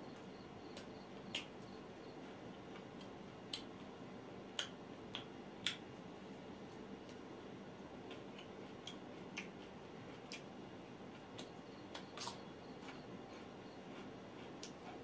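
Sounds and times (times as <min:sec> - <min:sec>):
low steady hum: 0:00.0 - 0:15.0
person chewing and lip smacking: 0:00.2 - 0:01.5, 0:08.1 - 0:10.5, 0:11.1 - 0:15.0.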